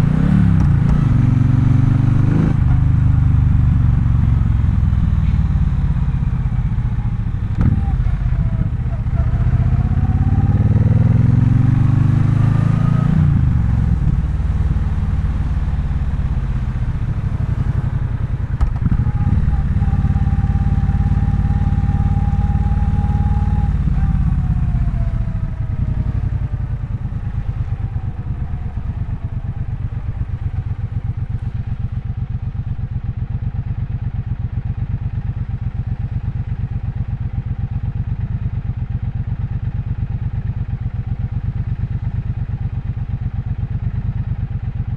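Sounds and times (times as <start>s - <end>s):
motorcycle engine revving: 0.0s - 33.6s.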